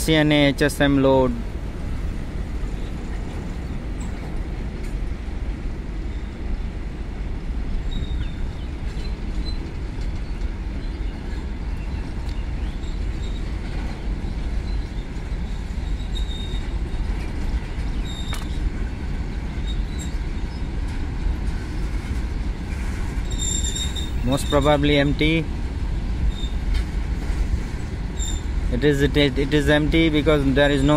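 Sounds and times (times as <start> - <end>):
steel wheels rumbling on rails: 0.0 - 30.9
wheel squeals: 7.8 - 9.7, 12.6 - 14.0, 14.6 - 17.2, 17.8 - 18.7, 19.6 - 20.7, 23.2 - 24.8, 26.3 - 26.7, 28.1 - 28.6.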